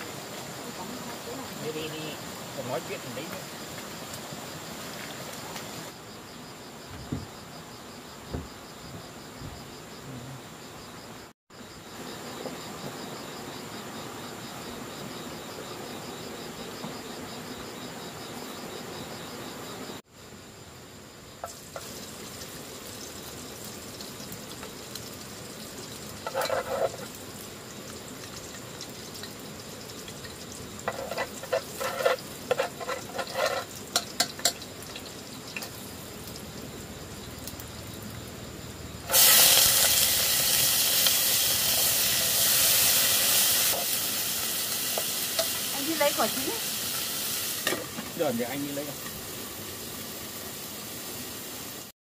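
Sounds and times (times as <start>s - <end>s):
food sizzling in hot oil: 0.0s - 6.3s, 20.0s - 51.9s.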